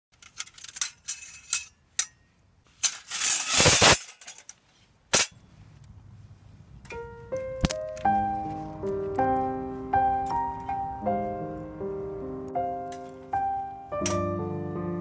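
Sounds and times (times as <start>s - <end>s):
sharp metal clank: 0.7s - 4.5s, 5.1s - 5.4s, 14.0s - 14.4s
metal grill scraping rattle: 2.8s - 4.5s.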